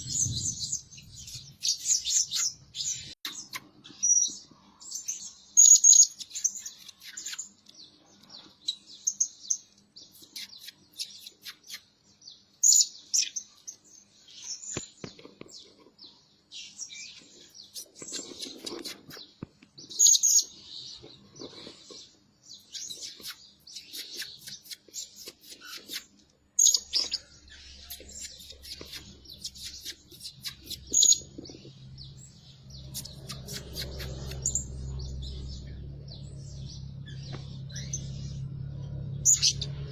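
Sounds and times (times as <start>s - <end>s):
parrot chirping: 32.7s - 35.7s.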